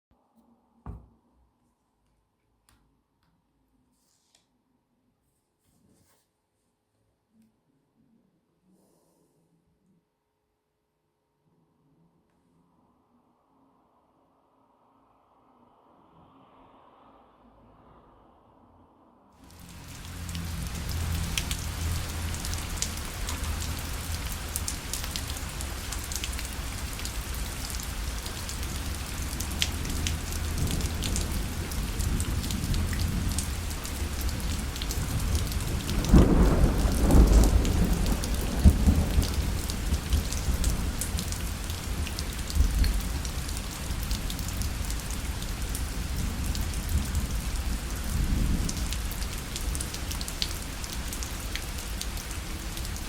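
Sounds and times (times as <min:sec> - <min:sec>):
rain pattering on a parasol: 0:19.4 - 0:53.0
low roll of thunder: 0:29.4 - 0:41.3.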